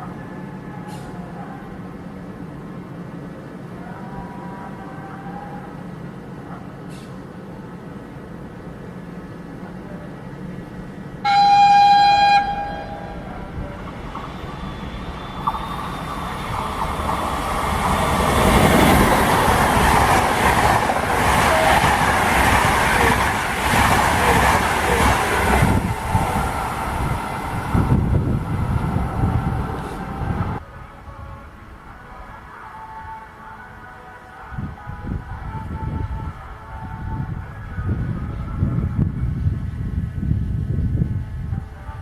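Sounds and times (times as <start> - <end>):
train rolling noise: 0.0 - 32.4
train horn blast: 11.2 - 14.2, 17.7 - 23.2.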